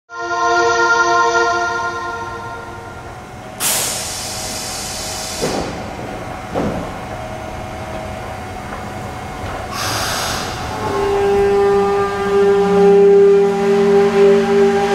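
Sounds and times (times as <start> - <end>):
electric train whine: 0.1 - 14.9
compressed air hiss: 3.6 - 5.8, 9.7 - 10.8.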